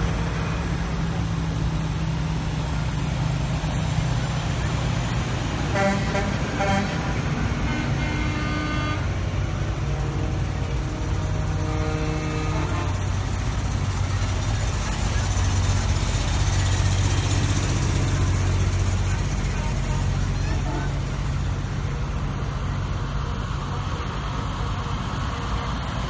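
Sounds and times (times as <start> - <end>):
deep truck engine passing: 0.0 - 25.4
truck engines rumbling: 0.0 - 26.0
long horn toots: 0.7 - 21.3.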